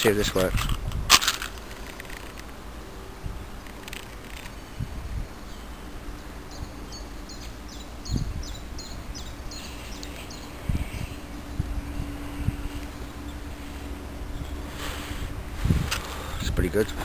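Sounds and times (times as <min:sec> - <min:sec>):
faint steady hum: 0:00.0 - 0:17.0
low outdoor rumble: 0:00.0 - 0:17.0
bird chirping: 0:05.4 - 0:14.8.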